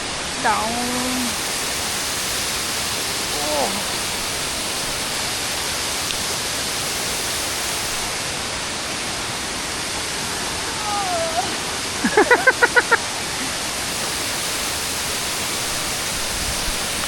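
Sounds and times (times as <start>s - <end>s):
waterfall rushing: 0.0s - 17.0s
person's voice: 0.4s - 1.4s, 3.3s - 4.0s, 10.7s - 11.6s.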